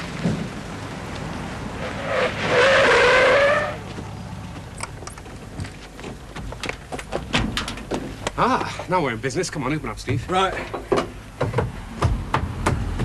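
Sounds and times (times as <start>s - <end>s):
car tyres squealing: 1.5s - 4.3s.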